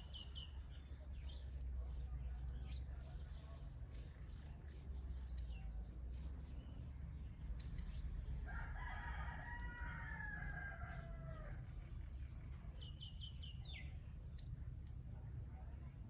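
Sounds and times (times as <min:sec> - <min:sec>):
rooster crowing: 0:08.5 - 0:11.6.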